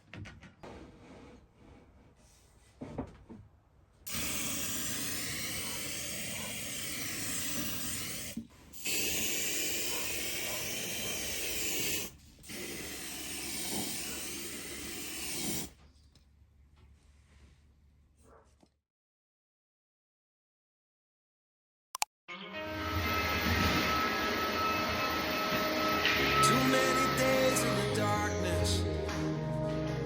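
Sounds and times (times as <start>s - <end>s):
stick vacuum running: 4.1s - 14.5s.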